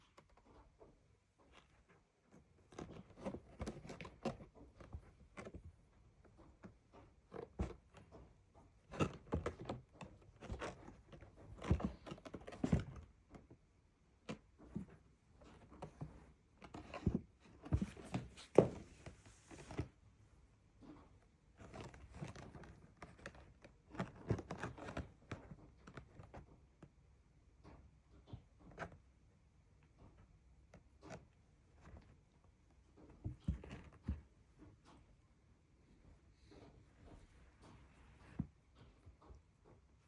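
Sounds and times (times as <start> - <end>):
kitten playing thumps and scuffling: 1.4 - 20.1, 29.9 - 40.0.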